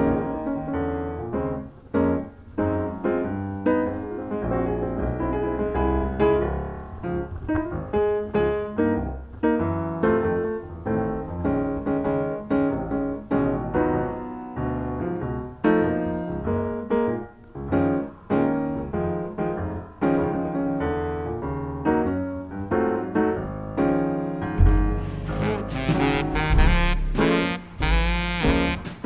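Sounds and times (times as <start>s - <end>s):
piano notes and chords: 0.0s - 29.0s
deep bass sound: 24.6s - 28.9s.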